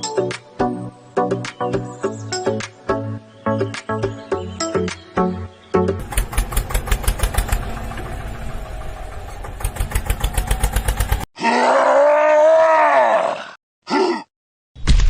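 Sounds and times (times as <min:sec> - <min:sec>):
tractor engine chugging: 0:06.0 - 0:11.3
long groaning voice: 0:11.4 - 0:14.3.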